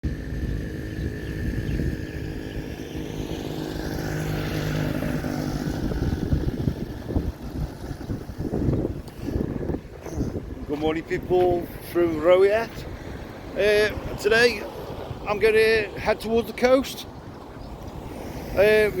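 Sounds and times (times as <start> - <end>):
road noise: 0.0 - 19.0
rush of noise: 0.0 - 19.0
motorcycle engine running: 0.1 - 9.0.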